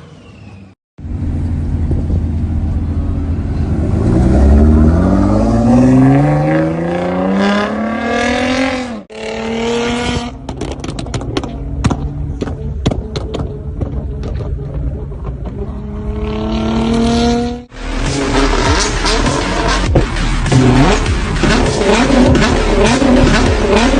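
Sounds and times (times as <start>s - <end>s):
car engine revving: 1.0s - 23.9s
exhaust pops and crackles: 10.3s - 15.8s.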